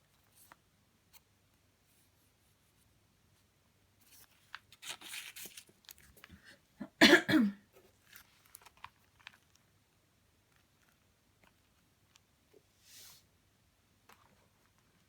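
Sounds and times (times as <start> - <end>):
paper and plastic rustling: 4.0 - 6.5, 7.8 - 9.7
person coughing: 6.8 - 7.6.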